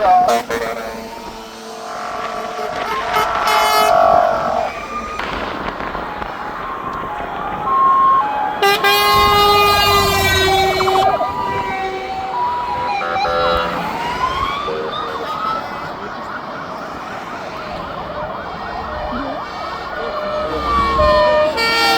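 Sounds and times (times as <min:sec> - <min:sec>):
long horn blast: 0:00.0 - 0:05.3, 0:08.5 - 0:14.1, 0:20.0 - 0:21.9
fire engine sirens: 0:00.0 - 0:21.9.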